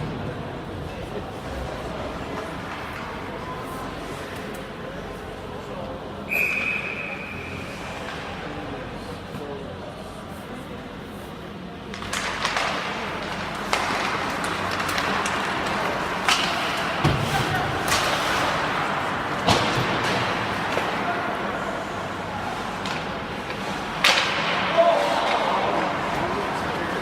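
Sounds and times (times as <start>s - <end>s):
spectators' voices: 0.0s - 27.0s
skates scraping ice: 11.3s - 27.0s
sticks and puck knocking boards: 11.9s - 21.0s.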